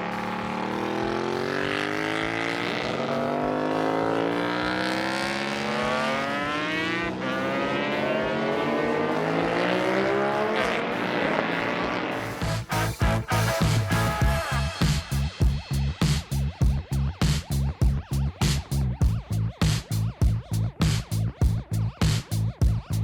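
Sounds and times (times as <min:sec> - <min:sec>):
high-revving engine accelerating: 0:00.0 - 0:15.5.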